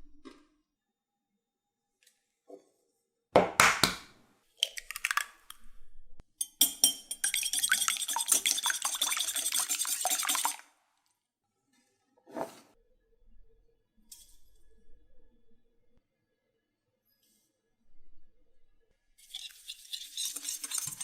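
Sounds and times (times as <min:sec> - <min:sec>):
utensil scraping against bowl: 0:07.1 - 0:10.6, 0:19.2 - 0:21.0.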